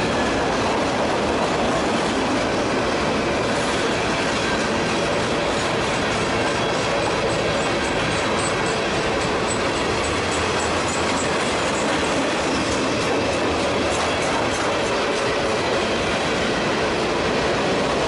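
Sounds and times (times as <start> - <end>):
train wheels rumbling on rails: 0.0 - 18.0
high wheel squeal: 6.2 - 12.7.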